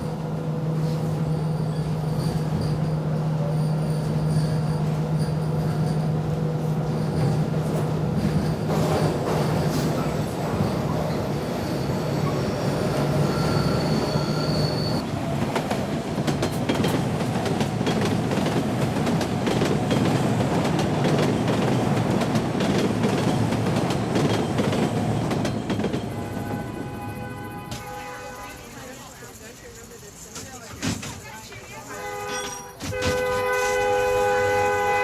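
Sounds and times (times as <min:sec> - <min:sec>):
train rumbling on rails: 0:00.0 - 0:35.0
high squeal: 0:01.2 - 0:06.1, 0:09.4 - 0:15.0.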